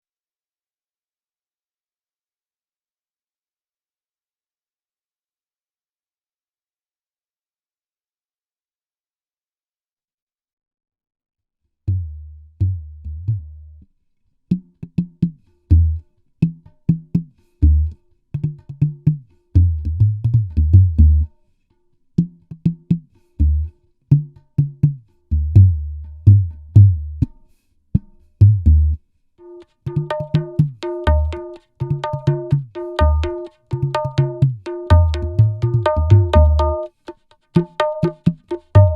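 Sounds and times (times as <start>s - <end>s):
held melodic tone: 29.4s - 36.9s
deep hand drum strokes: 30.0s - 36.9s.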